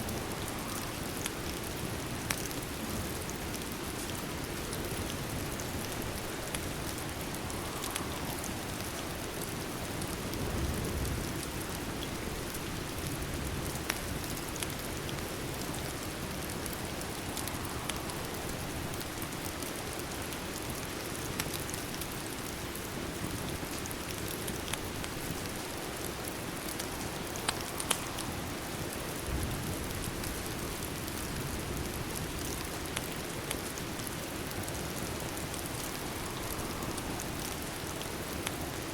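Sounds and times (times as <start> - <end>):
steady rain: 0.0 - 38.9
sharp pops and ticks: 27.4 - 28.2.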